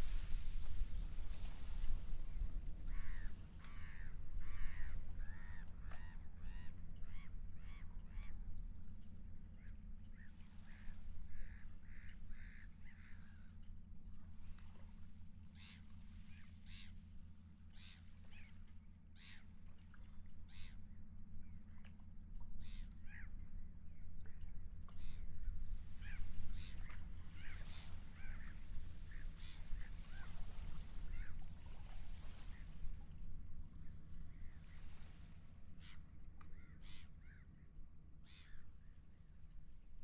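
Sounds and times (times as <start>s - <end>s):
steady low rumble: 0.0s - 40.0s
seagulls calling: 2.9s - 8.4s, 26.0s - 31.5s.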